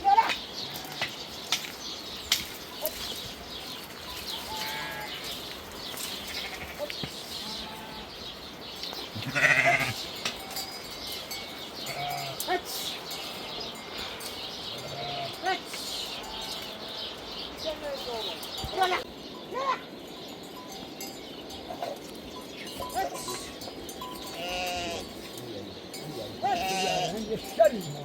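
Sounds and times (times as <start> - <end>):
goats or sheep bleating: 0.0 - 1.2, 4.2 - 8.2, 9.1 - 10.8, 11.7 - 16.9, 22.7 - 25.4, 26.2 - 28.0
small birds chirping: 0.0 - 28.0.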